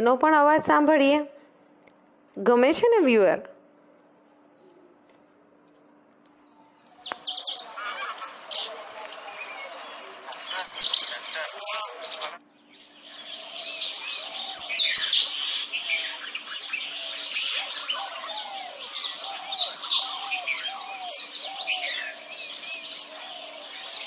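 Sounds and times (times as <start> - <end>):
faint steady hum: 0.0 - 24.0
robin chirps and trills: 6.4 - 24.0.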